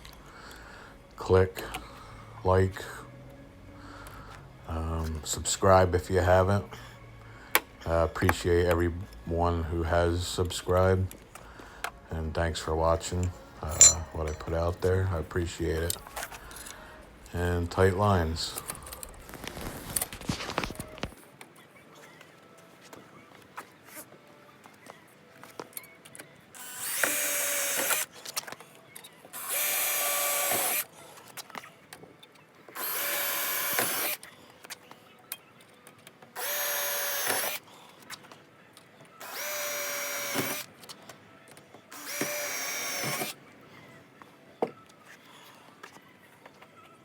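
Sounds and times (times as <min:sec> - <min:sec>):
electric drill running: 0:26.6 - 0:28.1, 0:29.4 - 0:30.9, 0:32.8 - 0:34.2, 0:36.4 - 0:37.6, 0:39.2 - 0:40.7, 0:41.9 - 0:43.4.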